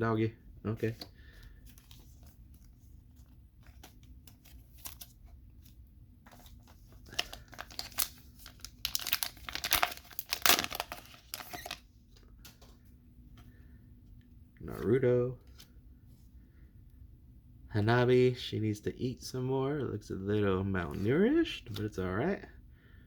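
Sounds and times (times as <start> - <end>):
wrapper tearing and crinkling: 7.0 - 11.8.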